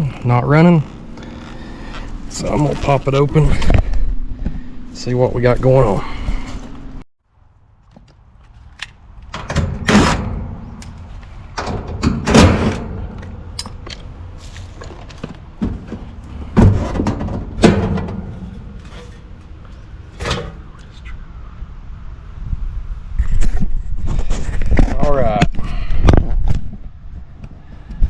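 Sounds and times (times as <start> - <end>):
sheet metal clunks and rattles: 11.6 - 13.3, 15.6 - 19.2.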